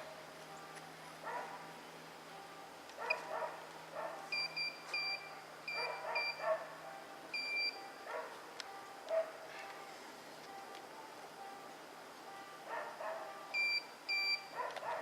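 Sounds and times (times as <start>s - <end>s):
metal detector beeps: 4.3s - 6.4s, 7.3s - 7.8s, 13.5s - 14.6s.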